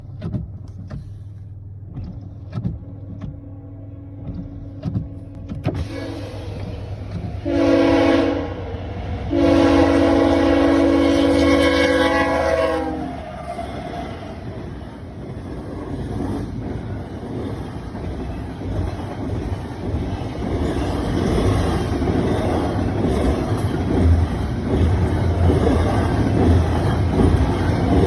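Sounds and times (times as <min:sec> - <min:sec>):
diesel locomotive rumble: 0:00.0 - 0:28.0
train air horn blasts: 0:05.8 - 0:14.4.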